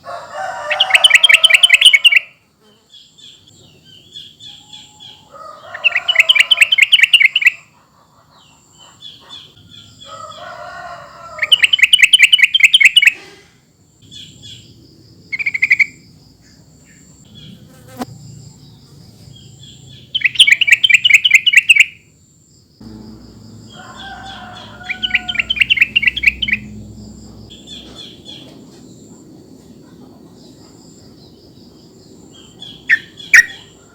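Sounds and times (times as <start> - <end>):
faint insect-like trills: 0.0 - 33.9
bulbul bubbling song: 25.0 - 26.7.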